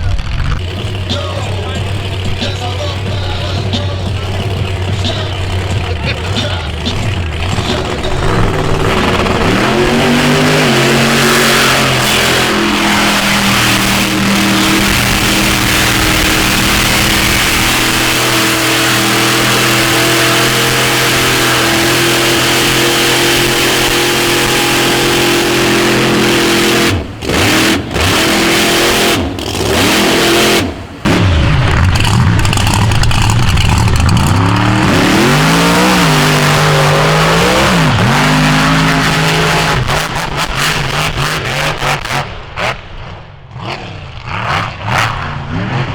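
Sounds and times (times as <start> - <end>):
off-road vehicle engine revving: 0.0 - 45.9.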